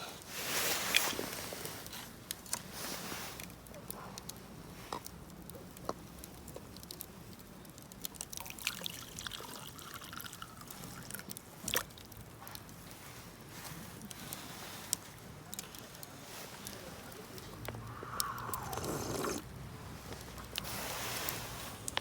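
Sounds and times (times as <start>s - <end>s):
campfire crackling and popping: 0.2s - 22.0s
liquid trickling as poured: 8.1s - 12.1s, 17.8s - 19.4s.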